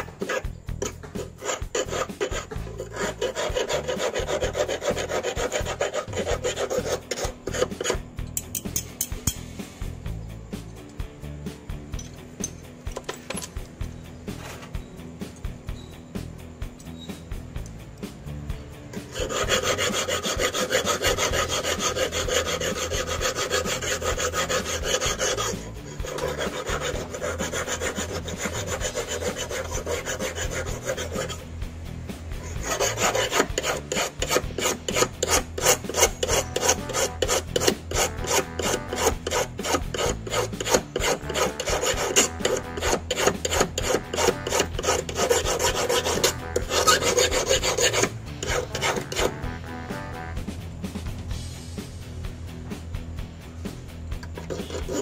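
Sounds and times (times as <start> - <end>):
hand file scraping steel wire: 0.0 - 9.5, 19.0 - 31.5, 32.4 - 49.4, 54.2 - 55.0.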